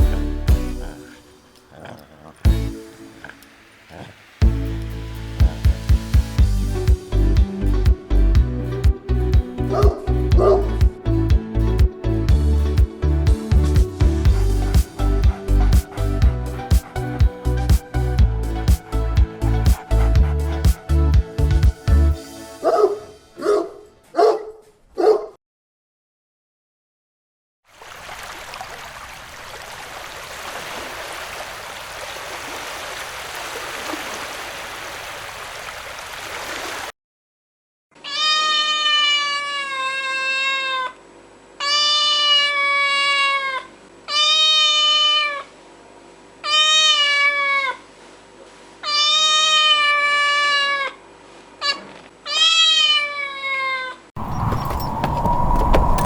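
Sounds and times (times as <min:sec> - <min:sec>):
cat meowing: 0:38.0 - 0:40.9, 0:41.6 - 0:45.5, 0:46.4 - 0:47.8, 0:48.8 - 0:51.0, 0:51.6 - 0:54.0.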